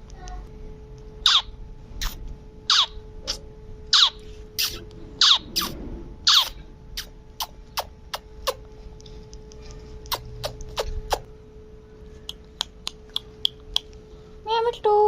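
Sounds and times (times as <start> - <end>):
parakeet chirps and clicks: 1.2 - 5.7, 6.3 - 8.6, 9.4 - 11.2, 12.2 - 14.0.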